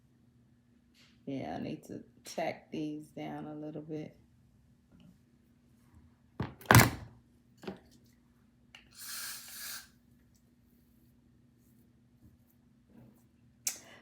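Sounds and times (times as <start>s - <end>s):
short hiss: 8.9s - 10.0s.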